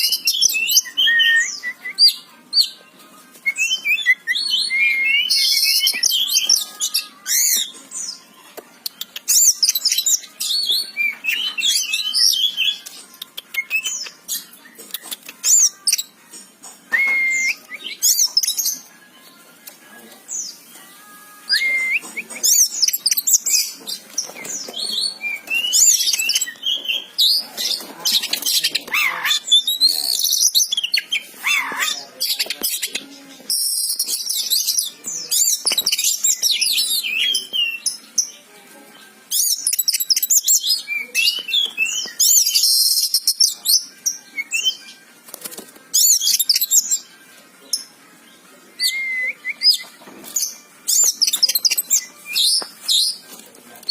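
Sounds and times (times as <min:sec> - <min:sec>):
bird singing whistled notes: 0:00.0 - 0:02.2, 0:03.4 - 0:07.7, 0:16.9 - 0:18.7, 0:21.5 - 0:23.7, 0:39.3 - 0:44.9.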